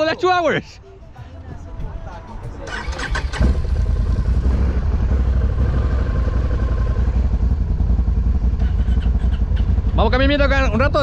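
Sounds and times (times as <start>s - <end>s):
atv engine running: 2.6s - 11.0s.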